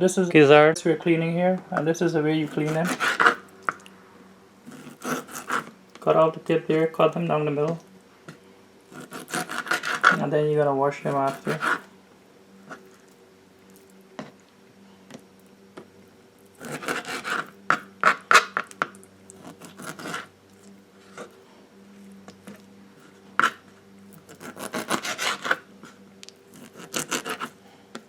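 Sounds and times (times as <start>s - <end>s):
knife scraping on cutting board: 2.4s - 3.4s, 4.7s - 5.7s, 8.9s - 10.2s, 11.1s - 11.9s, 16.6s - 18.8s, 19.4s - 20.3s, 22.5s - 27.6s.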